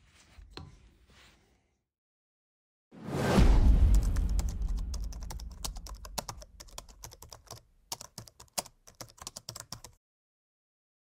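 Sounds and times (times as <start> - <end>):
keyboard typing clicks: 4.1 - 10.0.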